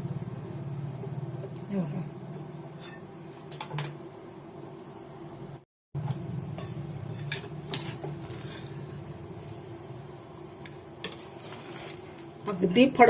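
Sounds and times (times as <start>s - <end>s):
spoon scraping a pot: 2.7s - 3.2s, 6.6s - 8.6s, 11.0s - 12.6s.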